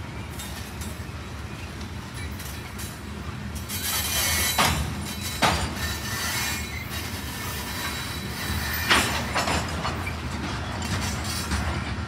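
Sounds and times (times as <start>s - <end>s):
wheels rumbling on rail: 0.0s - 12.0s.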